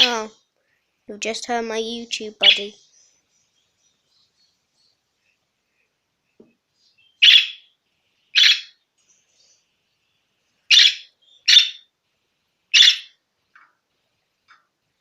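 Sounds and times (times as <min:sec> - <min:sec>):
budgerigar calls: 0:07.2 - 0:07.6, 0:08.3 - 0:08.8, 0:10.7 - 0:11.8, 0:12.7 - 0:13.1.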